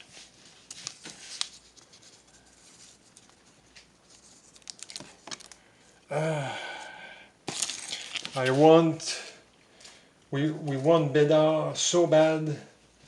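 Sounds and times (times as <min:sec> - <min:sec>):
trading cards rustling and clicking: 0:00.6 - 0:05.6, 0:07.5 - 0:08.7
short vocal sound: 0:06.1 - 0:07.0.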